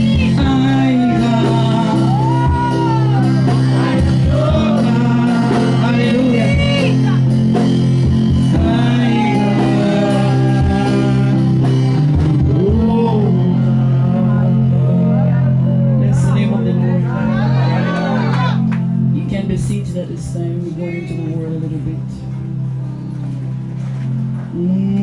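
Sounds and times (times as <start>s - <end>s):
steady drum beat: 0.0s - 13.6s
person singing: 0.0s - 18.6s, 24.5s - 25.0s
keyboard chords: 0.0s - 25.0s
sustained bass: 0.0s - 25.0s.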